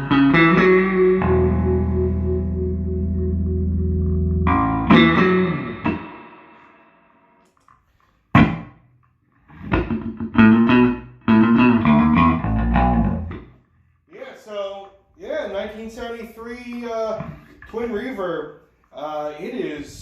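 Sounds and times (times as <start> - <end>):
electric bass guitar notes: 0.0 - 7.2, 8.4 - 8.9, 9.5 - 13.6, 16.6 - 17.8.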